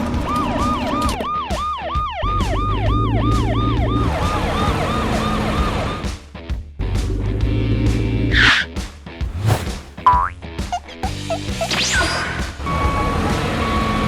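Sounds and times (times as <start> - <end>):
cartoon siren wailing: 0.4 - 6.0.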